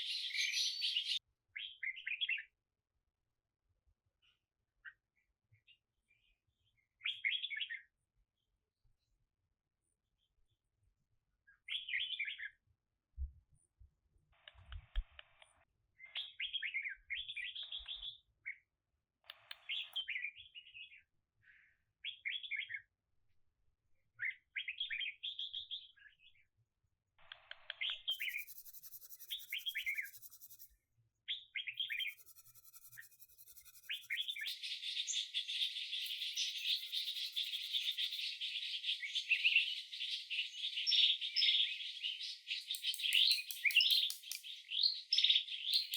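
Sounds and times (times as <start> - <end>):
songbird chirping: 0.0 - 2.4, 27.7 - 30.7, 31.5 - 45.9.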